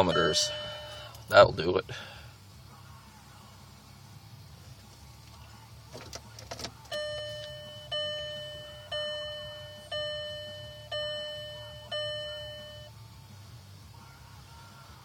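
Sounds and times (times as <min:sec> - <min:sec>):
gong-like warning chime: 0:00.0 - 0:01.1.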